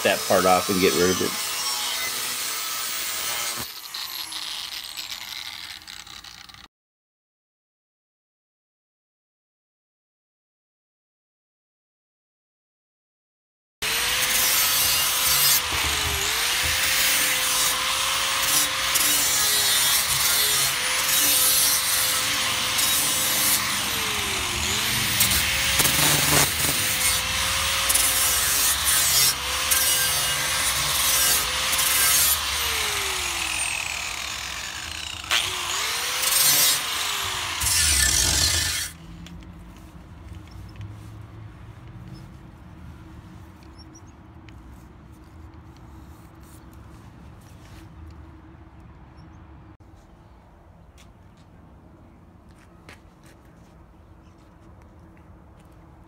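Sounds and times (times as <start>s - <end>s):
power tool cutting metal: 0.0s - 6.7s, 13.8s - 39.0s.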